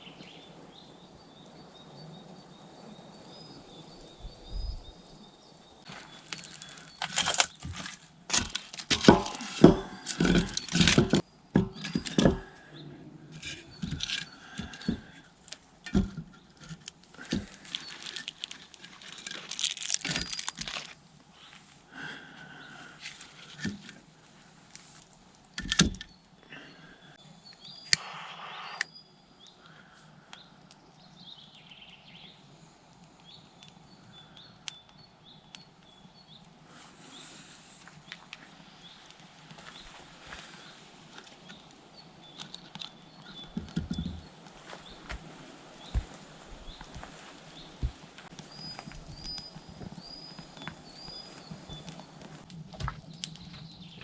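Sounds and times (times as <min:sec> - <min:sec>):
rustling and crinkling: 0:05.8 - 0:21.9, 0:23.0 - 0:25.7, 0:37.6 - 0:54.0
knocks of things handled: 0:06.0 - 0:12.6, 0:15.9 - 0:20.8
short high bird chirps: 0:27.8 - 0:29.0.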